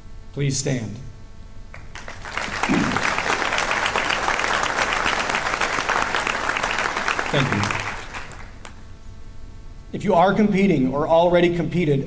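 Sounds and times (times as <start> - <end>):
audience applauding: 1.8 - 8.8.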